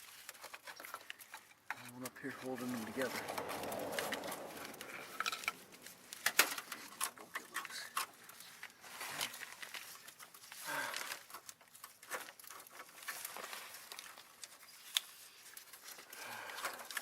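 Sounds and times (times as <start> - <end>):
hands clicking and rustling plastic: 0.0 - 17.0
low falling tone: 2.6 - 6.2.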